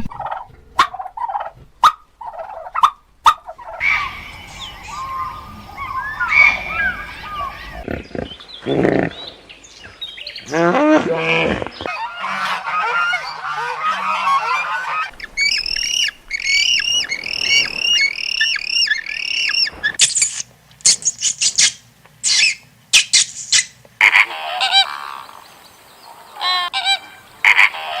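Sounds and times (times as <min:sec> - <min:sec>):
bird calls: 0:03.5 - 0:10.5, 0:11.5 - 0:28.0
harsh bird squawks: 0:03.6 - 0:07.8, 0:11.9 - 0:25.3
bird chattering: 0:03.8 - 0:07.8, 0:15.2 - 0:23.8.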